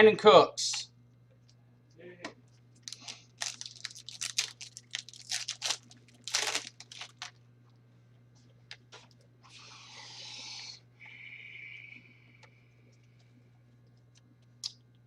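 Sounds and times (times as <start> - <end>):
plastic packaging crinkling: 2.7 - 7.4.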